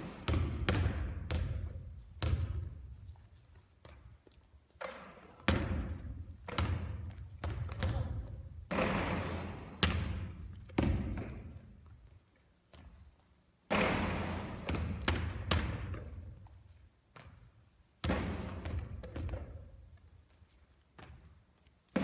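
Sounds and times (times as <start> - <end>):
basketball bouncing in a gym: 0.0 - 12.1, 12.7 - 20.4, 21.0 - 22.0.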